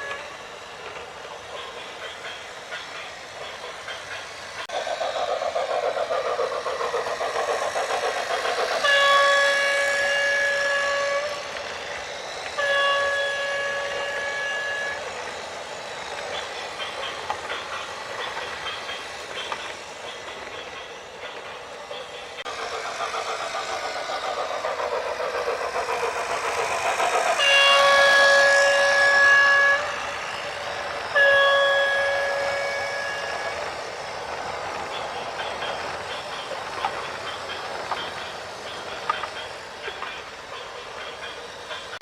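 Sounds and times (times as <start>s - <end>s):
vehicle horn blasts: 31.2s - 33.3s.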